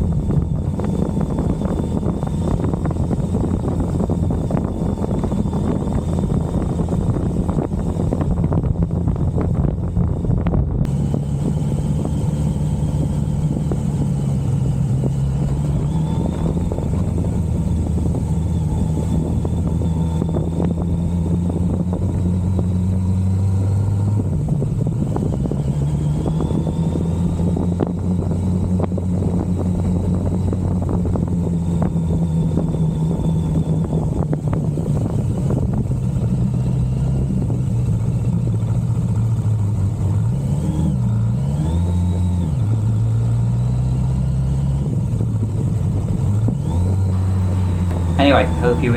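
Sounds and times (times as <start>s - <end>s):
motorcycle engine running: 47.1s - 48.9s.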